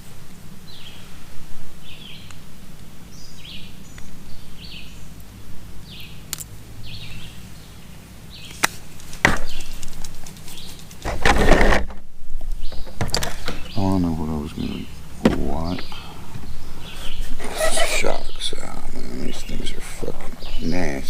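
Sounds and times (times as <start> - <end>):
steady low hum: 0.0 - 21.0
bird chirping: 0.6 - 1.1, 1.8 - 2.4, 3.1 - 5.2, 5.8 - 11.1, 12.5 - 21.0
rustling clatter: 8.7 - 12.1.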